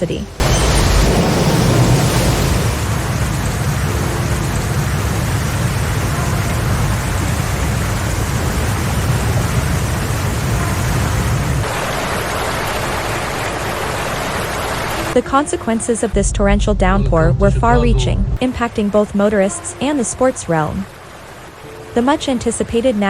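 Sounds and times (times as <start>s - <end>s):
deep rumble: 0.0s - 4.6s, 16.1s - 18.4s
heavy rain: 0.0s - 23.0s.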